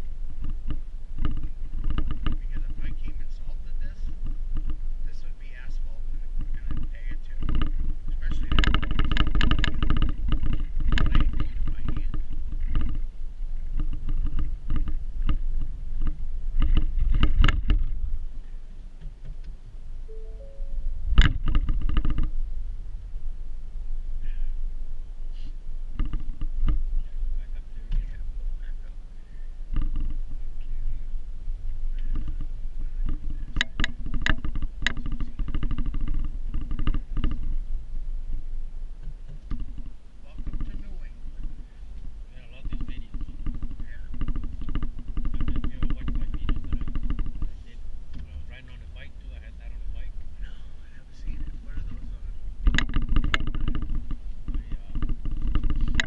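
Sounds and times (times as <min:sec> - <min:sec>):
low rumble: 0:19.9 - 0:21.7.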